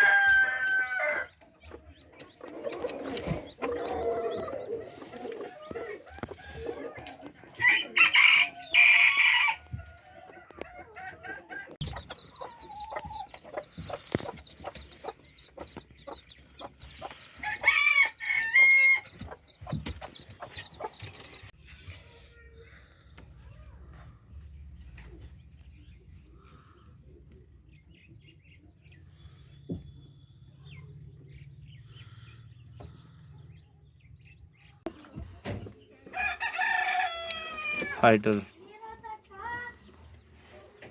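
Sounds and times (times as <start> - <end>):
roosters crowing: 0.0 - 1.4, 2.6 - 13.3, 17.3 - 19.4, 36.1 - 38.0
chickens clucking: 0.0 - 8.6, 9.6 - 21.6
caged birds chirping faintly: 0.0 - 40.9.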